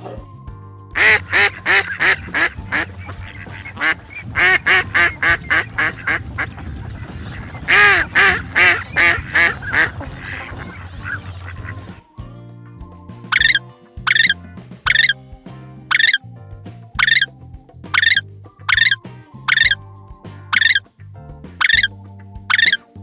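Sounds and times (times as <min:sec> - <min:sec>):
duck quacking: 0:01.6 - 0:11.7.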